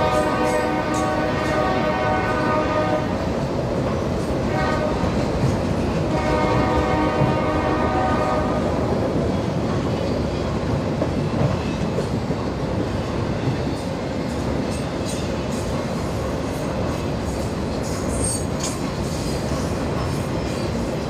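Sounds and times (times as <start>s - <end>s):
train air horn chord: 0.0s - 3.2s, 4.5s - 5.1s, 6.1s - 8.6s
train wheels rumbling on rails: 0.0s - 21.0s.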